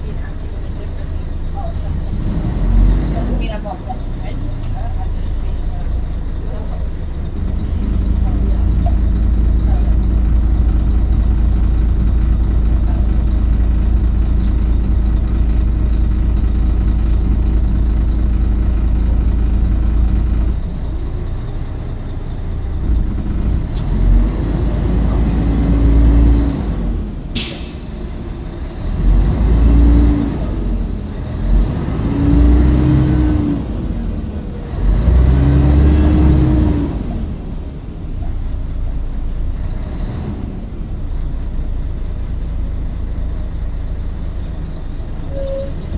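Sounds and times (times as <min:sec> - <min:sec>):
bus diesel engine revving: 0:00.0 - 0:45.9.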